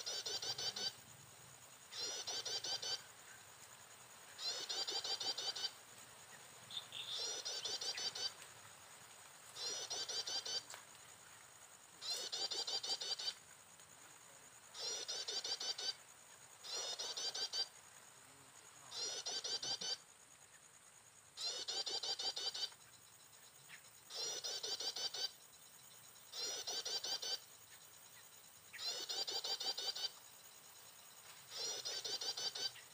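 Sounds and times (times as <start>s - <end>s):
bird song chirping phrase: 6.7s - 8.3s.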